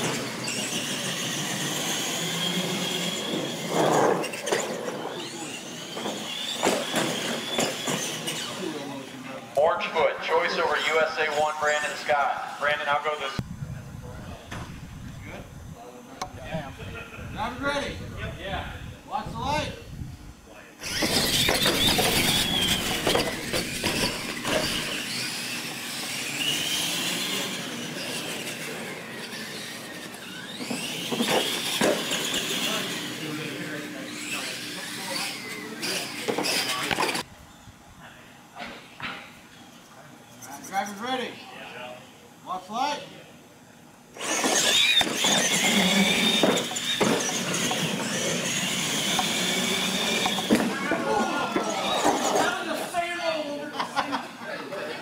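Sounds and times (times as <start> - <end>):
rough tyre noise: 0.0 - 8.6, 20.8 - 37.3, 44.2 - 52.7
toy truck motors whining: 0.0 - 9.1, 20.8 - 37.3, 44.1 - 53.4
tyre noise on concrete: 20.8 - 25.1, 44.3 - 52.5.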